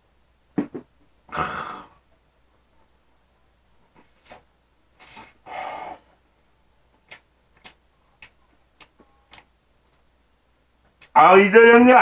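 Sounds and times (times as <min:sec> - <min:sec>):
breathy rush: 0:05.0 - 0:06.2.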